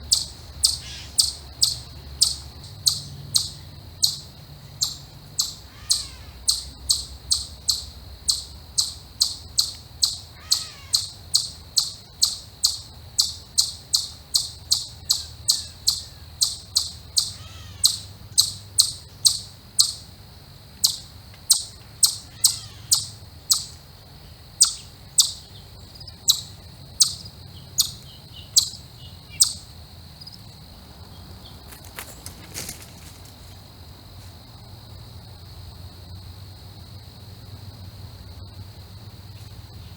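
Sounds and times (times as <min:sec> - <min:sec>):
faint bird chirps: 0:00.0 - 0:20.1, 0:20.8 - 0:29.7
insect trill: 0:00.0 - 0:39.9.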